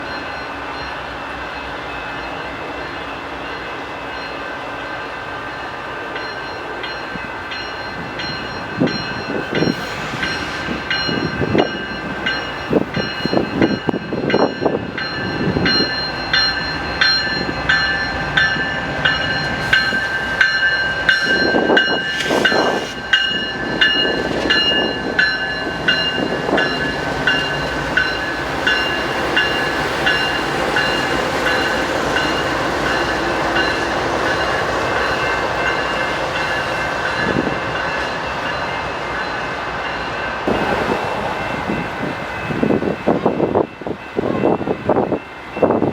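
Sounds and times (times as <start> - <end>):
train rumble: 0.0 - 45.9
train wheels clicking: 6.3 - 39.0.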